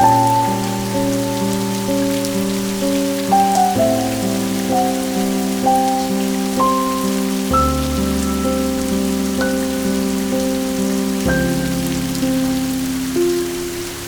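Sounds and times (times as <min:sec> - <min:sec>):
soft instrumental music: 0:00.0 - 0:14.0
steady rain falling: 0:00.0 - 0:14.0.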